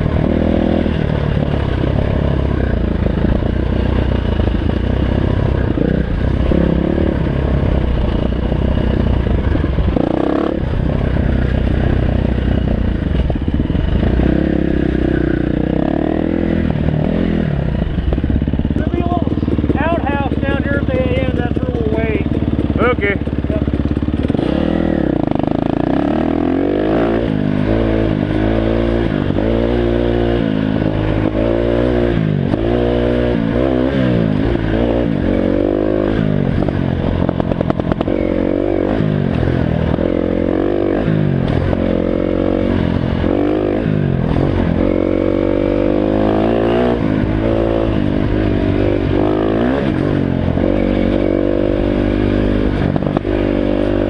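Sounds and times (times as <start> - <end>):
clatter: 0.0 - 15.6, 16.6 - 25.9, 36.1 - 45.0, 46.4 - 54.0
dirt bike engine revving: 0.0 - 54.0.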